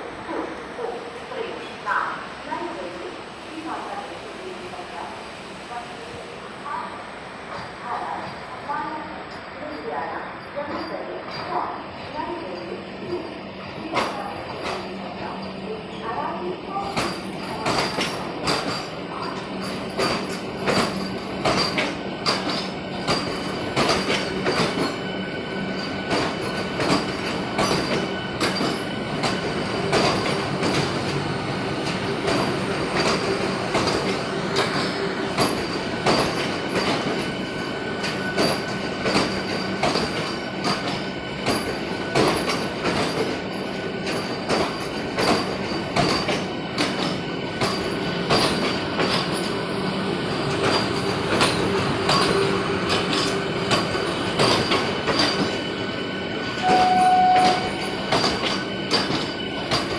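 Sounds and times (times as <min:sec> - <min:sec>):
train rumble: 0:00.0 - 0:59.9
train wheels clattering over rail joints: 0:16.8 - 0:59.9.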